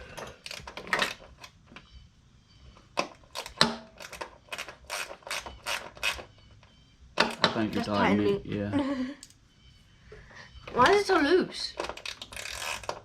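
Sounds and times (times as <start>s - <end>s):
ratchet wrench clicking: 3.3s - 6.3s, 11.9s - 13.0s.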